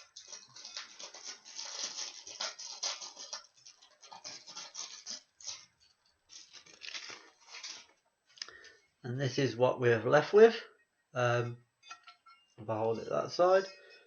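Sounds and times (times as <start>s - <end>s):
packaging rustling and tearing: 0.0s - 8.0s.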